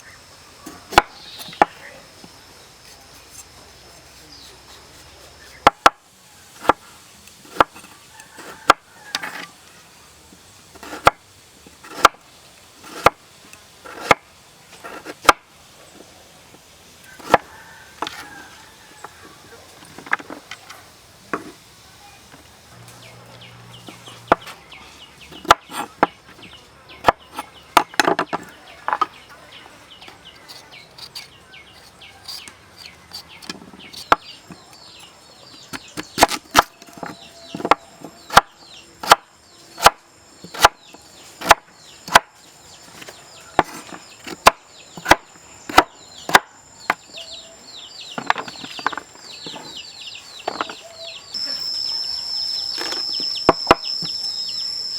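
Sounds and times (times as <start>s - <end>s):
knife chopping on wooden board: 5.5s - 6.0s, 6.6s - 6.8s, 11.8s - 12.2s, 17.2s - 18.2s, 25.4s - 26.2s, 35.7s - 39.2s, 41.4s - 42.3s, 43.6s - 47.0s.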